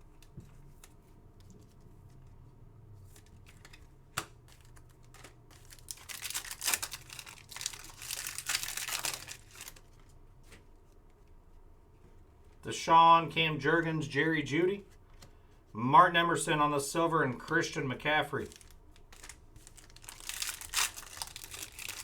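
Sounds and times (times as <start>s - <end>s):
wrapper crinkling and tearing: 4.5s - 10.0s, 18.3s - 22.0s.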